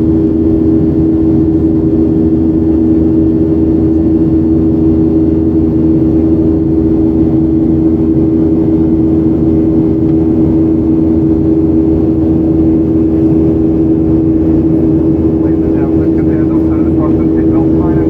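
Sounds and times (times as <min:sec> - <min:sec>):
jet engines humming: 0:11.7 - 0:18.0.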